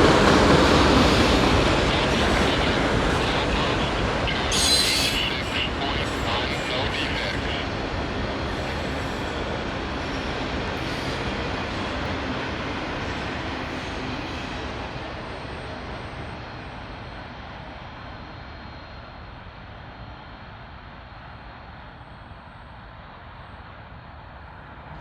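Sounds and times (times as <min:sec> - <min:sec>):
freight train rumbling past: 0:00.0 - 0:25.0.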